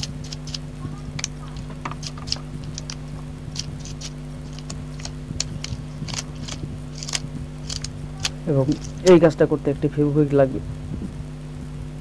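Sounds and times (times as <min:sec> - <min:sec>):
scrubbing rubber key strips: 0:00.0 - 0:09.3
low electrical hum: 0:00.0 - 0:12.0.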